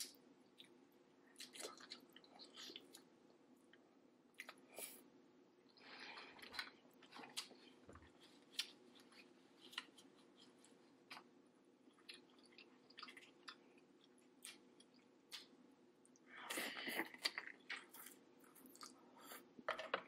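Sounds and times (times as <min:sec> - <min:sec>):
wet chewing and mouth clicks: 0:00.0 - 0:03.1, 0:11.9 - 0:19.0
low steady hum: 0:00.0 - 0:20.0.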